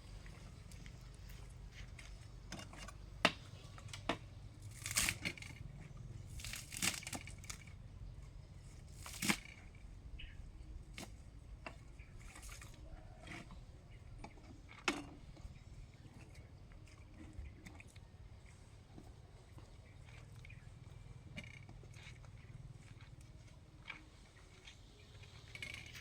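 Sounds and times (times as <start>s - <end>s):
low steady background hum: 0.0s - 26.0s
rustling and tearing: 4.6s - 5.6s, 6.3s - 7.7s, 9.0s - 9.6s.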